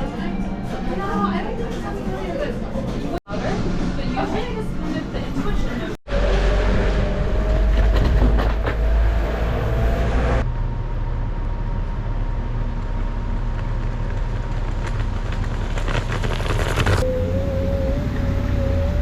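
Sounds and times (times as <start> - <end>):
low hum: 6.1 - 19.0
wind and road rumble: 6.1 - 19.0.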